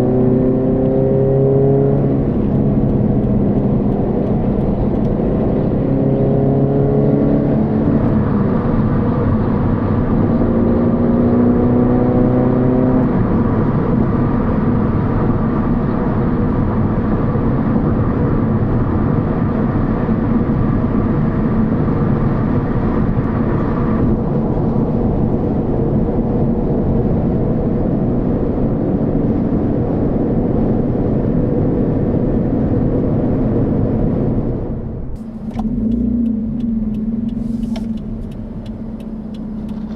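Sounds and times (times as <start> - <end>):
road noise: 0.0 - 39.9
car exhaust note: 35.1 - 39.9.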